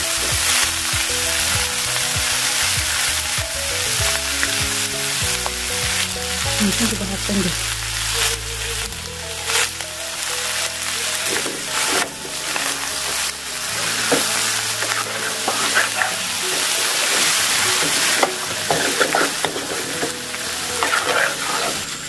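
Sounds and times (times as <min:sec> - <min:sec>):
curry sizzling in a pan: 0:00.0 - 0:22.0
metal spoon scraping a pan: 0:11.2 - 0:22.0.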